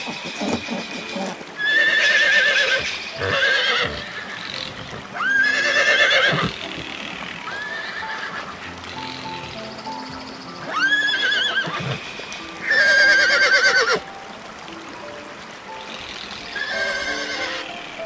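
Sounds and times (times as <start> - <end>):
horses whinnying: 0.0 - 9.5, 10.6 - 14.0, 16.4 - 17.8.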